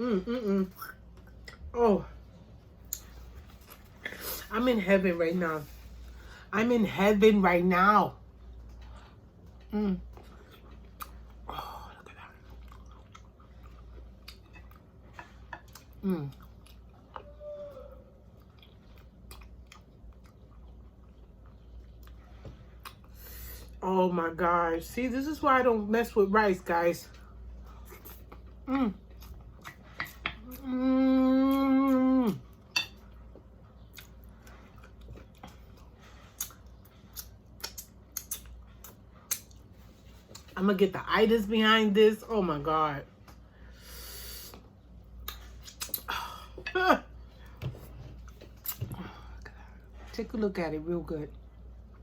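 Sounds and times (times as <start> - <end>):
close-up chewing: 8.3 - 23.2, 27.1 - 30.7, 32.5 - 40.6
wet mouth clicks: 45.2 - 46.1.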